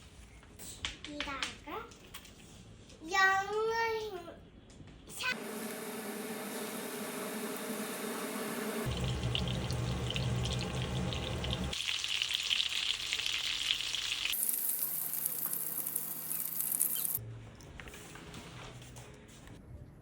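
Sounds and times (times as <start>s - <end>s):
food sizzling in a pan: 5.4s - 17.2s.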